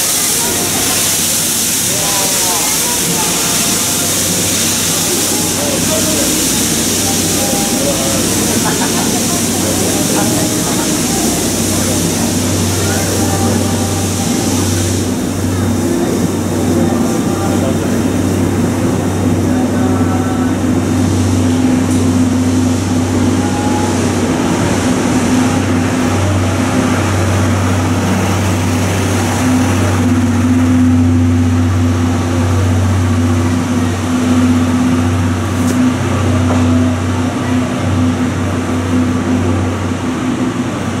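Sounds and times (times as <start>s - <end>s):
steady low hum: 0.0s - 41.0s
train coaches rolling past: 0.0s - 41.0s.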